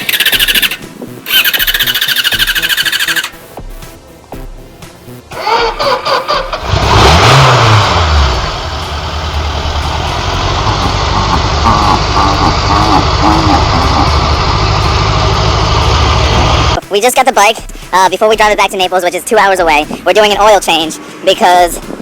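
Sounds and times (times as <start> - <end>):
motorcycle electric starter cranking: 0.0 - 3.4, 5.3 - 7.8
motorcycle engine revving and idling: 0.0 - 3.5, 5.3 - 16.8.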